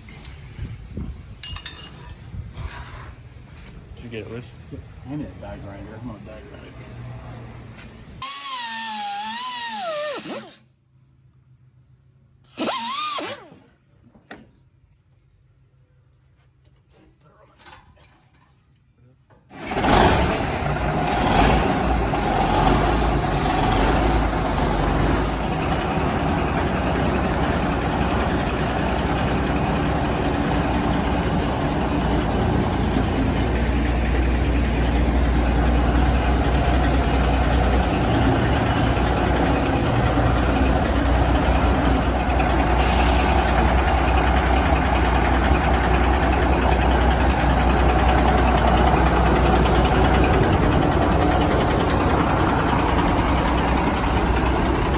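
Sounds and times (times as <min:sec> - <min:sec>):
diesel engine idling: 0:19.6 - 0:54.9.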